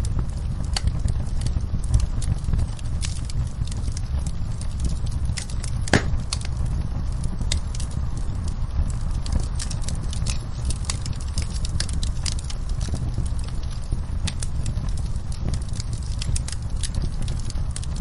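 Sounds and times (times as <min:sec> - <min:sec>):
fire crackling: 0:00.0 - 0:18.0
low rumble: 0:01.0 - 0:07.6
loud fire pop: 0:05.6 - 0:06.6.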